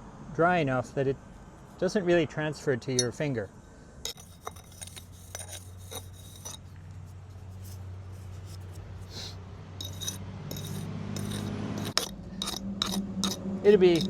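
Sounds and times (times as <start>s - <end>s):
steady low hum: 0.0s - 14.0s
metal tools clinking and scraping: 3.0s - 3.2s, 4.1s - 6.7s, 9.8s - 14.0s.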